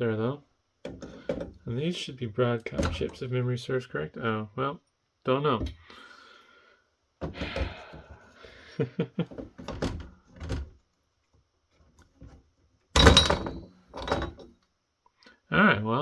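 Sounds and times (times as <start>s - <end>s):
heatsink clunking and scraping: 0.8s - 1.6s, 2.7s - 3.2s, 13.0s - 14.5s.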